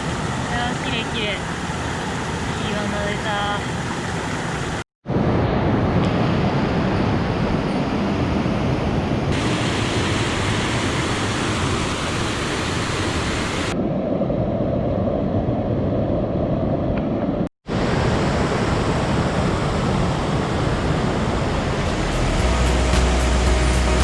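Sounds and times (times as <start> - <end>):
mountain stream rushing: 9.3 - 13.8, 17.7 - 24.0.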